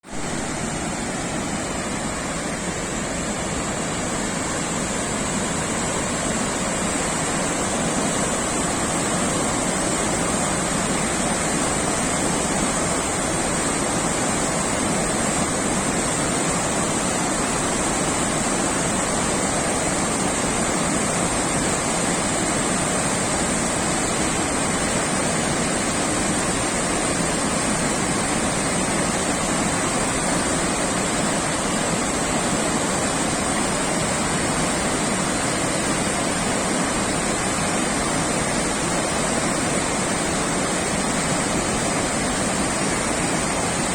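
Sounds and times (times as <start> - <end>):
floodwater rushing: 0.0 - 43.9.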